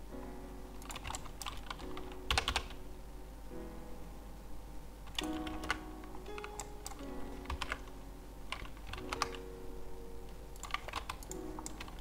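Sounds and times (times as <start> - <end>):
soft background music: 0.0 - 12.0
keyboard keystrokes: 0.8 - 2.8, 5.1 - 9.4, 10.6 - 12.0.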